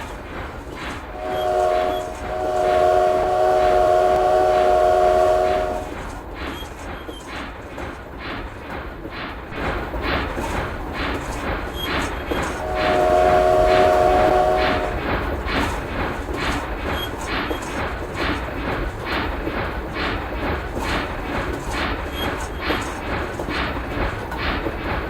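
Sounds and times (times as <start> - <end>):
train running with rhythmic beat: 0.0 - 25.0
locomotive horn chord: 1.1 - 5.9, 12.6 - 15.0.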